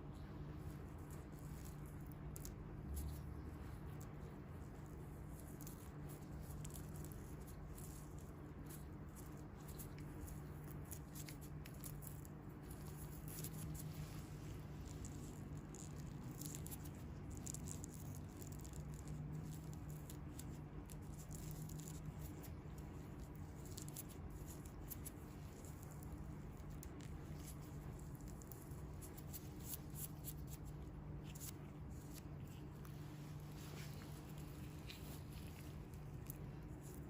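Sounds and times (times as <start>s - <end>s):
steady low hum: 0.0s - 37.0s
faint crackling with soft ticks: 0.1s - 37.0s
hands rubbing bare feet: 26.8s - 37.0s.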